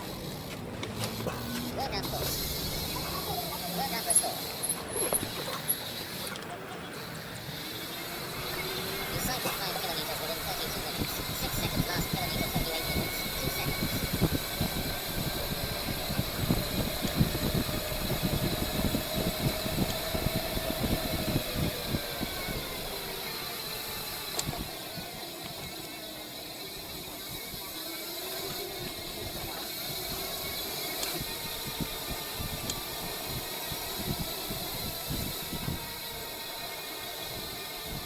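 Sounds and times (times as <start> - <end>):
vehicle engine humming: 0.0 - 38.0
wind buffeting microphone: 7.4 - 26.1, 28.4 - 36.5, 37.1 - 38.0.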